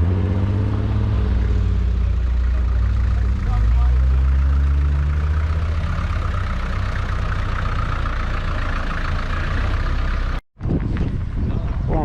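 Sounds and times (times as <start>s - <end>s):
vehicle engine idling: 0.0s - 10.4s.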